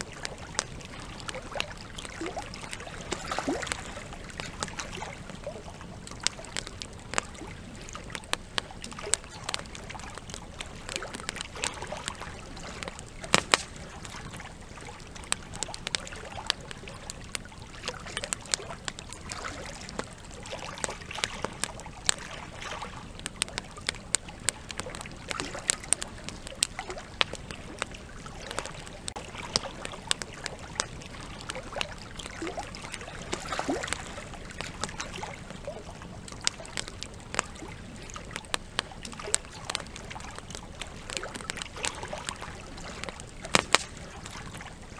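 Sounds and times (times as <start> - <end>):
river water flowing: 0.0 - 23.9, 37.3 - 44.9
campfire crackling and popping: 0.0 - 44.9.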